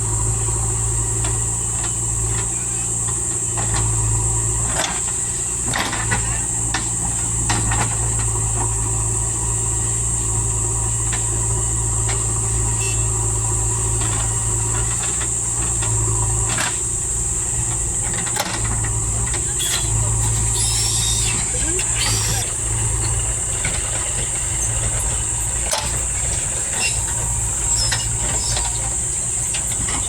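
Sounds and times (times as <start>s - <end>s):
diesel engine running: 0.0s - 30.0s
clanks and knocks: 17.6s - 20.7s.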